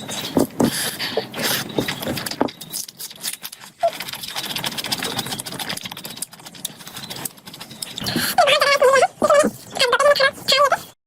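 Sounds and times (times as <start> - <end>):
wet chewing and lip smacking: 0.0 - 8.5.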